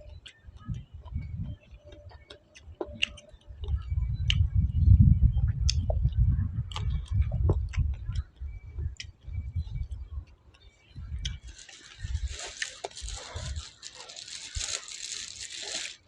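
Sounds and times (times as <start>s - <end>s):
person chewing food: 11.2s - 16.0s.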